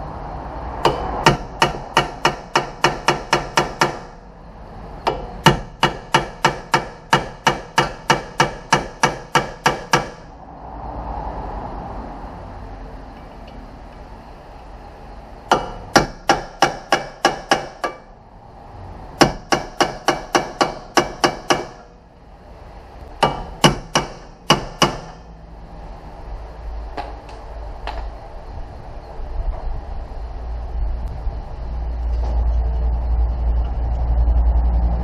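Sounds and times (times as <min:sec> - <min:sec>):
hammer striking metal: 0:00.8 - 0:04.2, 0:05.0 - 0:10.3, 0:15.5 - 0:18.2, 0:19.2 - 0:22.0, 0:23.2 - 0:25.3.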